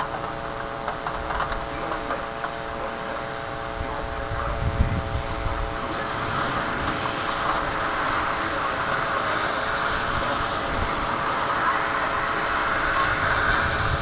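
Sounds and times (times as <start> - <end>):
heavy rain falling: 0.0 - 14.0
steady hum: 0.0 - 14.0.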